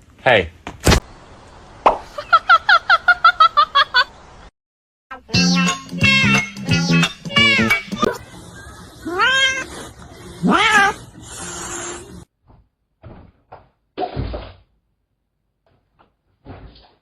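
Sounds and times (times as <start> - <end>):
cat meowing: 9.0 - 9.7, 10.4 - 12.0.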